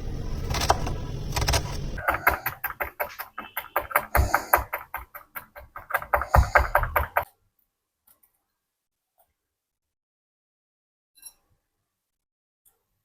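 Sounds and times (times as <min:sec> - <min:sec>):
rapid sharp knocks: 0:02.0 - 0:07.2.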